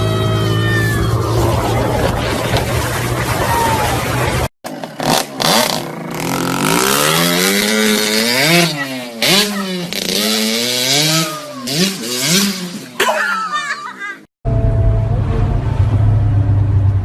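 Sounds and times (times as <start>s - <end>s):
motorcycle engine revving: 4.0s - 13.0s.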